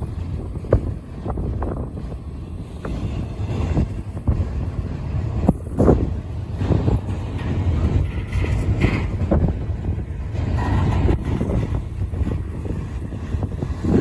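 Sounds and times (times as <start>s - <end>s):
steel wheels rumbling on rail: 0.0s - 14.0s
train cars clunking and rattling: 0.0s - 14.0s
wind buffeting microphone: 0.0s - 14.0s.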